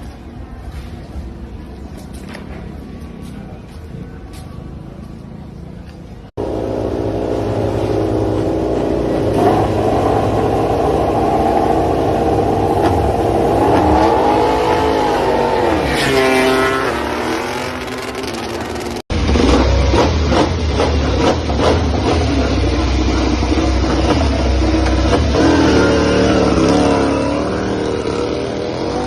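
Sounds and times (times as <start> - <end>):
racing motorcycle engine revving: 6.4 - 29.0.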